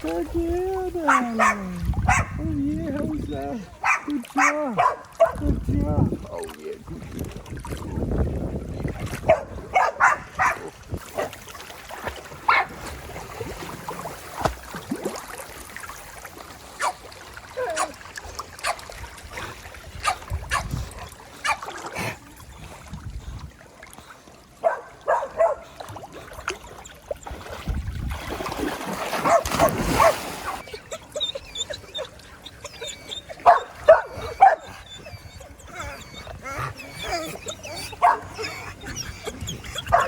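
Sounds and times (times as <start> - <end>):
water splashing: 0.0 - 40.0
dogs barking and yipping: 1.0 - 2.4, 3.2 - 5.4, 9.2 - 11.3, 12.4 - 12.8, 16.8 - 17.0, 17.6 - 18.0, 18.6 - 18.9, 20.0 - 20.8, 21.4 - 21.7, 24.6 - 25.8, 29.2 - 40.0
dogs whimpering: 1.0 - 5.0, 29.3 - 40.0.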